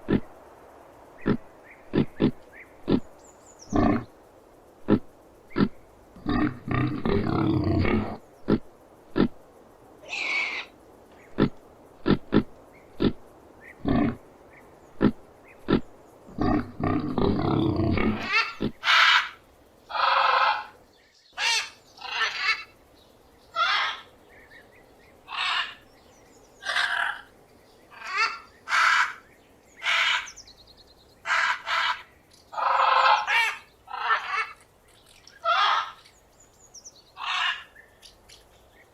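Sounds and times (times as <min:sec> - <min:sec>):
pig grunting: 0:00.0 - 0:00.3, 0:01.2 - 0:03.1, 0:03.7 - 0:04.1, 0:04.8 - 0:09.4, 0:11.3 - 0:13.2, 0:13.8 - 0:14.2, 0:15.0 - 0:18.8.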